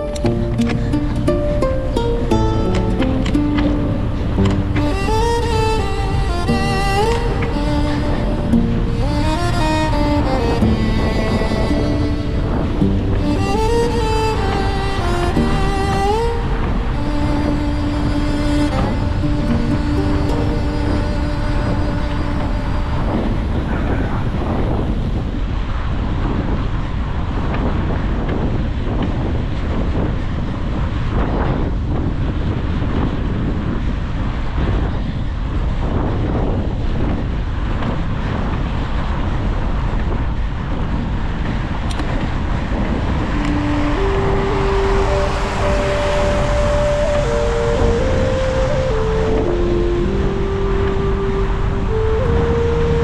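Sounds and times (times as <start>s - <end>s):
music: 0.0s - 23.6s, 43.3s - 53.0s
road and traffic noise: 0.0s - 28.6s, 36.7s - 53.0s
wind rumbling on microphone: 0.0s - 53.0s.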